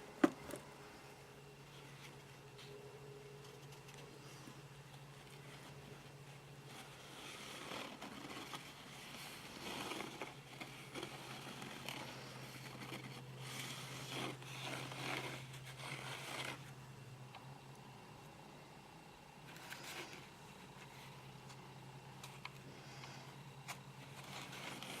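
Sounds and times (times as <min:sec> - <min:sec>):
low steady hum: 0:00.0 - 0:25.0
hands scraping pots and soil: 0:05.2 - 0:16.8, 0:23.7 - 0:25.0.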